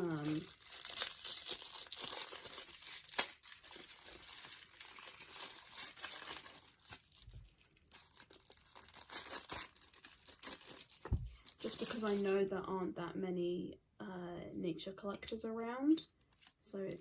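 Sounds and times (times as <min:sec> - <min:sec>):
packaging crinkling and rustling: 0:00.0 - 0:12.5.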